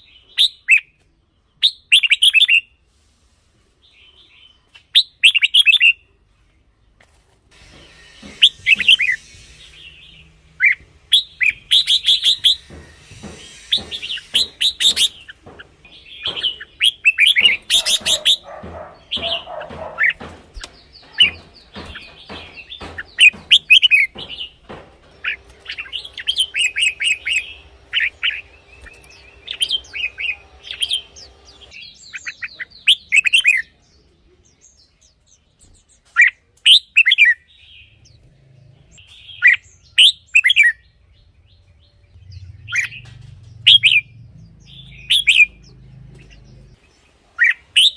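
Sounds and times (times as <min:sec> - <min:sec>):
birds singing chirpy phrases: 0:08.6 - 0:47.9.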